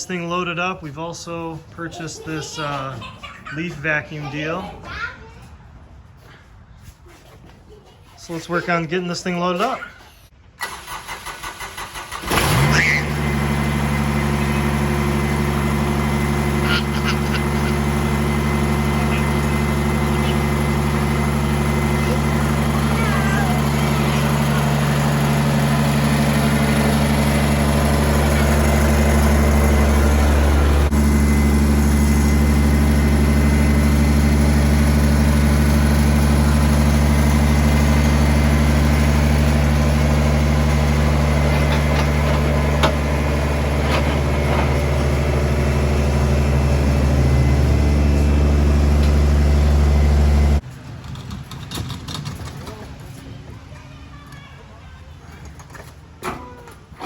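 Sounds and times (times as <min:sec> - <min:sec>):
diesel engine idling: 0:10.6 - 0:50.6.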